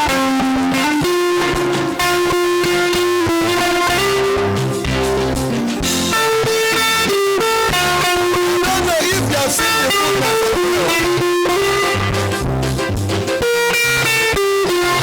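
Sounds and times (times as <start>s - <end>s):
bass and drums: 0.0s - 15.0s
electric guitar melody: 0.0s - 15.0s.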